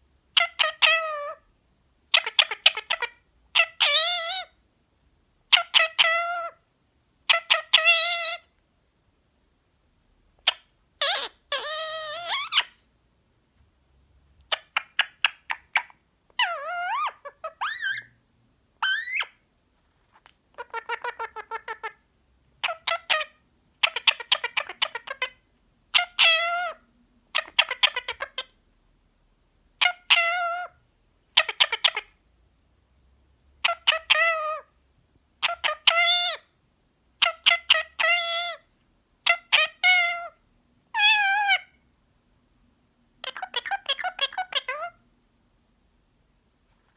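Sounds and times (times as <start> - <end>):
parrot talking: 0.4 - 1.4, 2.1 - 4.6, 5.5 - 6.6, 7.3 - 8.5, 10.4 - 12.8, 14.5 - 18.1, 18.8 - 19.4, 20.5 - 22.0, 22.6 - 28.6, 29.8 - 30.8, 31.4 - 32.2, 33.6 - 34.8, 35.4 - 36.5, 37.2 - 41.8, 43.2 - 45.0.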